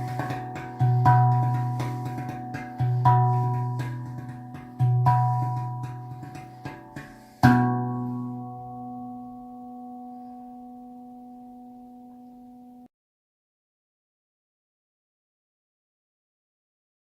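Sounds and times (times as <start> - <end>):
steel tongue drum ringing notes: 0.0 - 12.9.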